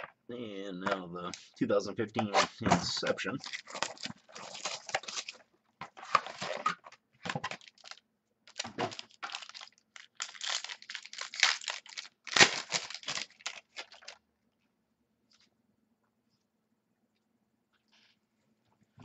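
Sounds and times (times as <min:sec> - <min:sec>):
plastic wrapping tearing and crinkling: 0:03.4 - 0:14.2.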